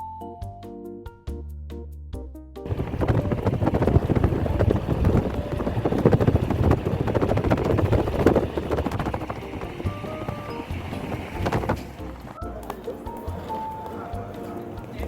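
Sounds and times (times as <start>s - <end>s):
cabin rattling and knocks: 2.7s - 12.1s
airliner cabin rumble: 2.7s - 12.4s.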